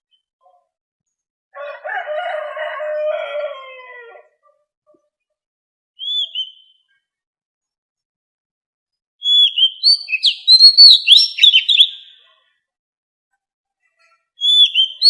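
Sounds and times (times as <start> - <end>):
rooster crowing: 1.5 - 4.4.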